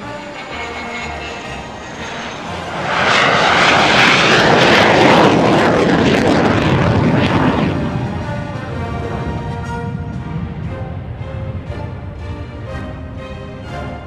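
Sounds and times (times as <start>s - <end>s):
propeller plane flying past: 0.0s - 14.0s
background music: 8.6s - 14.0s.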